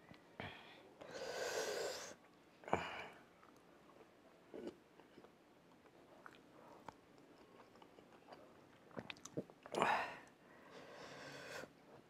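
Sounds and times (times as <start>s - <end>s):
wet mouth clicks and smacks: 8.9s - 9.4s.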